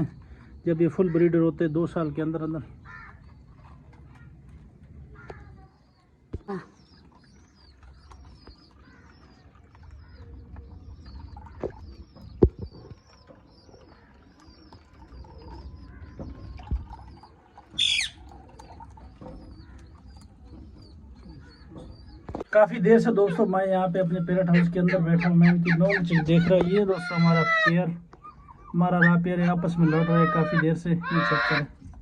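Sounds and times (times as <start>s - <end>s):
birds chirping: 0.0s - 32.0s
shrill bird squawk: 17.8s - 18.2s.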